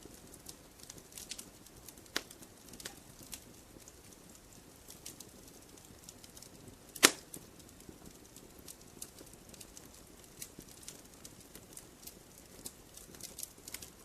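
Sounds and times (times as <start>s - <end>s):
wood fire crackling: 0.0s - 14.0s
loud sharp pop from fire: 2.0s - 3.5s, 6.3s - 7.5s.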